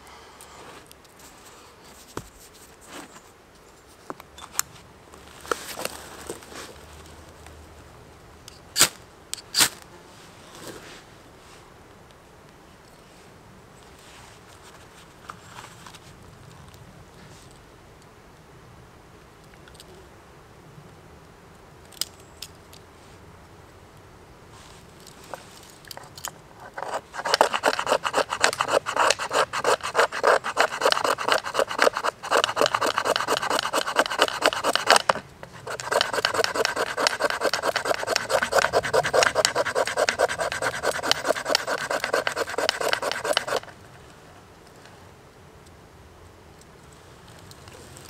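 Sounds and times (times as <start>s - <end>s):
hand tool rasping on wood: 26.7s - 43.7s.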